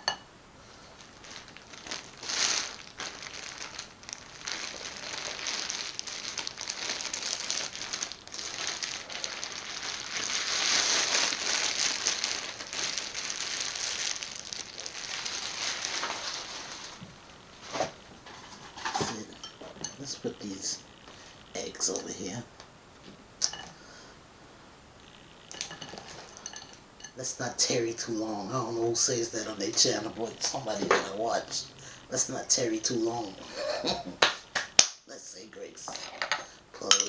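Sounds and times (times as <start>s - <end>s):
plastic bag crinkling: 0.7s - 20.8s, 25.4s - 34.1s.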